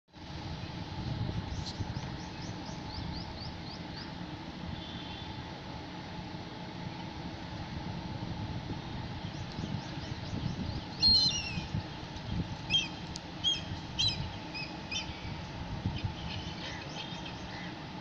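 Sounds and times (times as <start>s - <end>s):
low background rumble: 0.2s - 18.0s
birds chirping: 9.2s - 17.9s.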